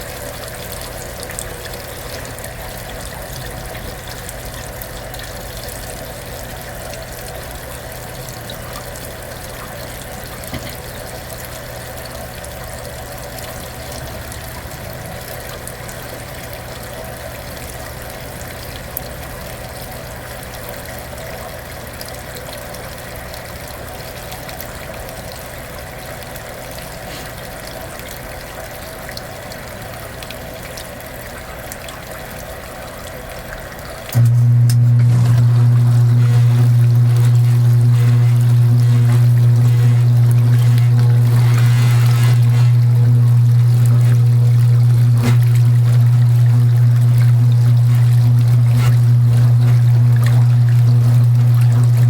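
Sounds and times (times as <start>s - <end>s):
washing machine hum: 0.0s - 52.0s
water sloshing: 34.2s - 52.0s.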